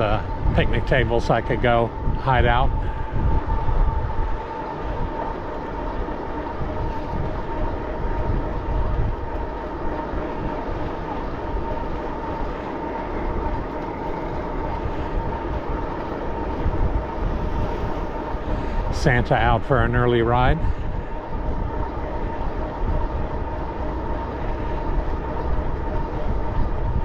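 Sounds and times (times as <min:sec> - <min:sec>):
bicycle tyre noise: 0:00.0 - 0:19.0
high-pitched whine: 0:00.0 - 0:27.0
wind rumble: 0:00.0 - 0:27.0.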